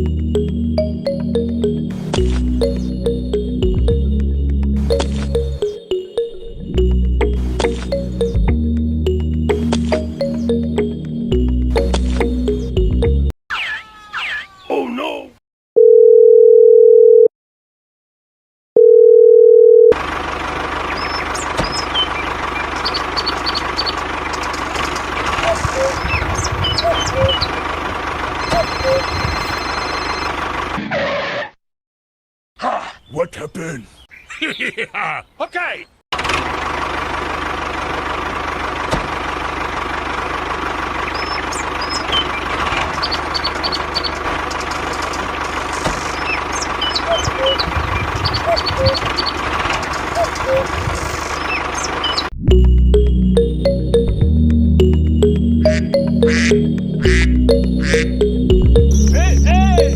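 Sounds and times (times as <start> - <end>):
birds chirping: 0.0 - 3.9, 9.4 - 15.2, 20.8 - 27.7, 32.6 - 36.0, 41.0 - 52.3, 55.3 - 59.9
engine idling with low knock: 20.0 - 29.6, 36.2 - 52.7
electronic beep tone: 28.4 - 30.3, 51.4 - 59.9.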